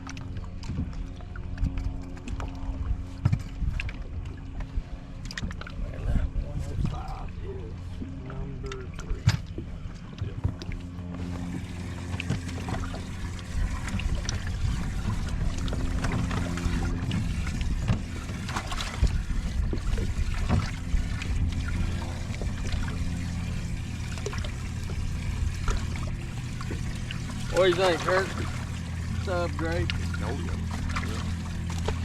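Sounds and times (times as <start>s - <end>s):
boat motor humming: 0.0s - 32.0s
water trickling: 10.6s - 32.0s.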